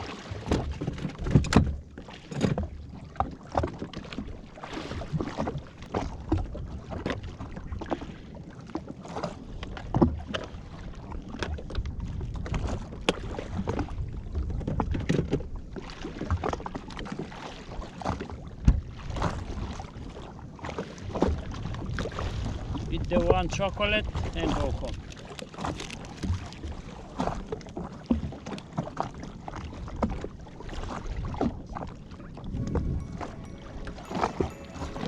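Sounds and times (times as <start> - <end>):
water slapping against hull: 0.0 - 32.4.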